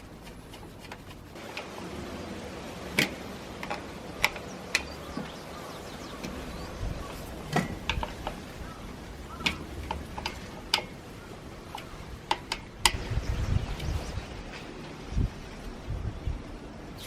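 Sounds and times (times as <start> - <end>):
clicks and taps of hand tools: 3.0 - 5.3, 7.5 - 8.4, 9.4 - 11.0, 11.7 - 13.0.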